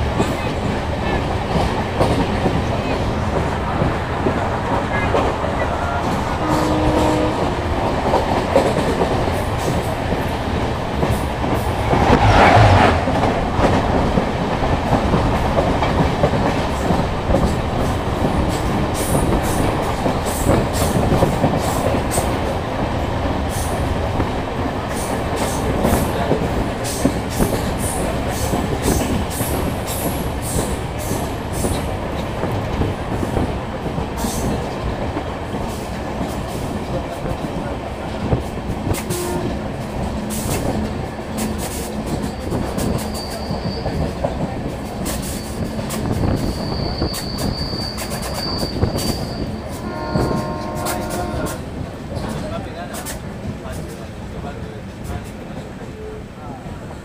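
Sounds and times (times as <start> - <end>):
train wheels clickety-clack: 0.0 - 57.0
rushing noise: 10.2 - 15.5.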